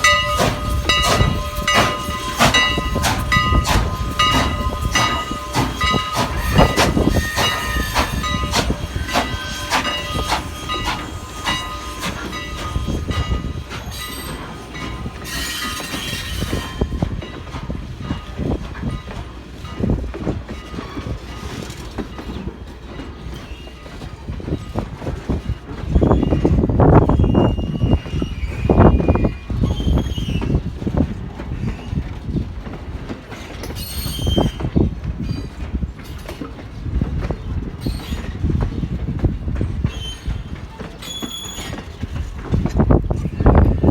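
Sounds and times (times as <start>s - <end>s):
steam hiss: 0.0s - 16.7s
high-pitched wheel squeals: 0.0s - 17.0s, 27.1s - 30.6s, 33.6s - 34.7s, 39.8s - 42.0s
steam locomotive chuffing: 0.0s - 32.2s
train wheels rumbling and knocking: 0.0s - 43.9s.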